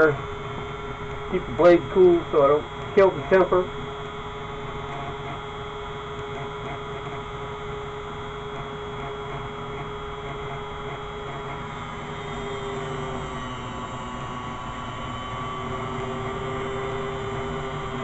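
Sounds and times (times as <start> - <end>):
grinder motor humming: 0.0 - 18.0.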